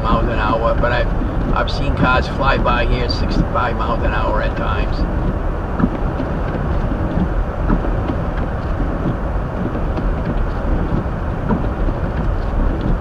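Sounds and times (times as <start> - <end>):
tyre and road noise: 0.0 - 13.0.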